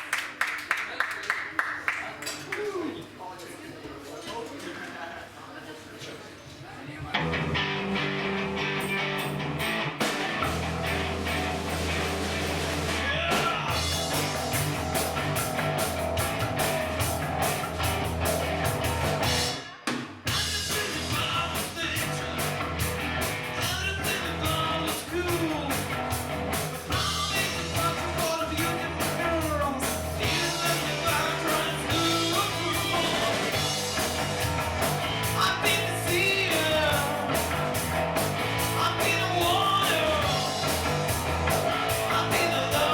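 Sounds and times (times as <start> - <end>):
rock band playing: 7.1 - 42.9
person singing: 26.9 - 33.5, 35.2 - 37.5, 38.7 - 40.6, 41.8 - 42.9.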